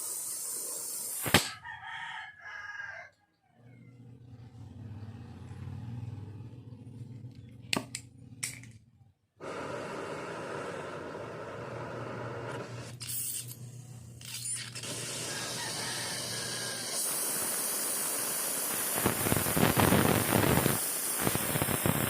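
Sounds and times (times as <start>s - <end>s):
torch popping: 0.0s - 1.5s, 9.4s - 13.6s, 14.2s - 22.0s
welding torch hissing: 0.0s - 1.5s, 9.4s - 22.0s
rooster crowing: 1.5s - 3.9s, 15.2s - 16.9s.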